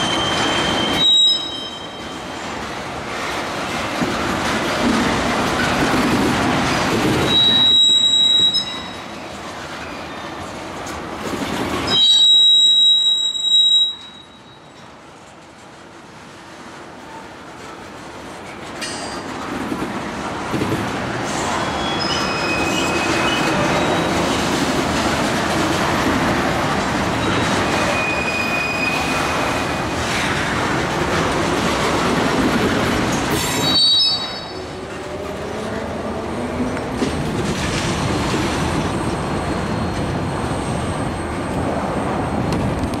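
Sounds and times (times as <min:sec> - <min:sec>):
high wheel squeals: 0:00.0 - 0:02.4, 0:07.2 - 0:09.2, 0:11.9 - 0:14.7, 0:21.5 - 0:24.3, 0:27.2 - 0:30.0, 0:33.5 - 0:34.8, 0:38.9 - 0:41.6
train wheels rumbling on rails: 0:00.0 - 0:43.0.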